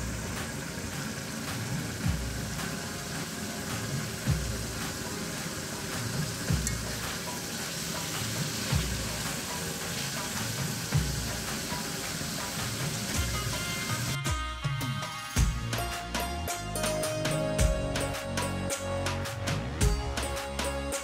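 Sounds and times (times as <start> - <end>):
curry sizzling in hot oil: 0.0 - 14.2.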